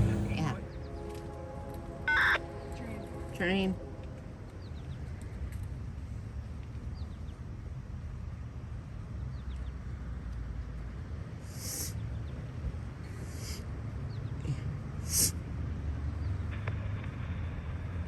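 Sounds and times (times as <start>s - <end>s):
low outdoor rumble: 0.0s - 18.0s
brief high hiss: 11.5s - 11.9s, 13.3s - 13.6s, 15.1s - 15.4s.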